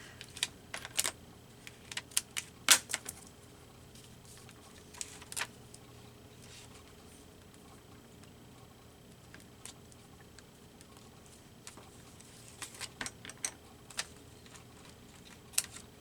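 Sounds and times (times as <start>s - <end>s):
paper handling clicks: 0.2s - 3.3s, 4.3s - 5.6s, 11.7s - 15.9s.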